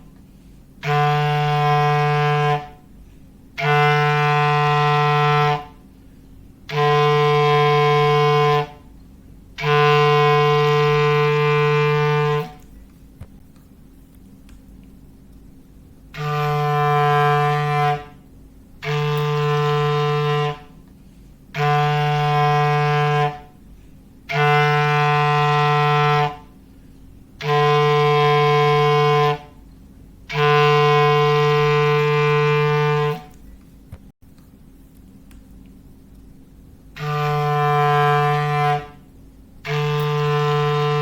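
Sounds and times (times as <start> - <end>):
foghorn blasts: 0.0 - 6.0, 6.6 - 12.7, 16.1 - 33.4, 36.9 - 41.0.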